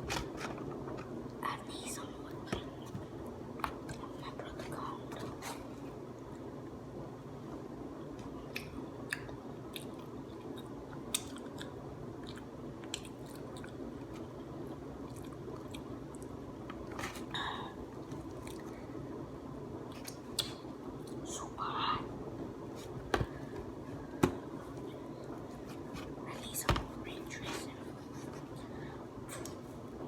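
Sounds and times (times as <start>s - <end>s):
low background hum: 0.0s - 30.0s
person chewing food: 8.5s - 16.3s.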